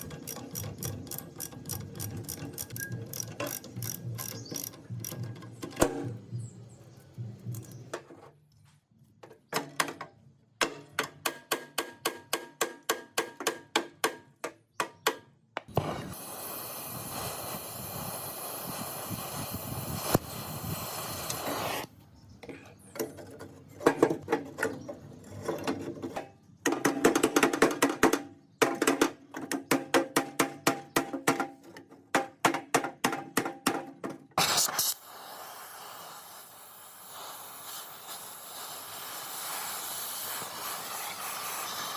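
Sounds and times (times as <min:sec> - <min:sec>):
steady hissing: 0:15.8 - 0:21.9, 0:34.4 - 0:41.9.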